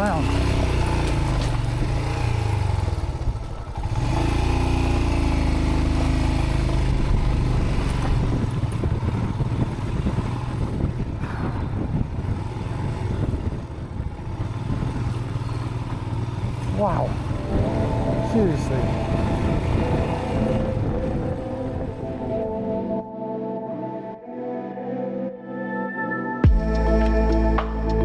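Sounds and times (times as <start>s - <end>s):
rattling over rough ground: 0.0s - 21.4s
motorcycle engine at low revs: 0.0s - 22.6s.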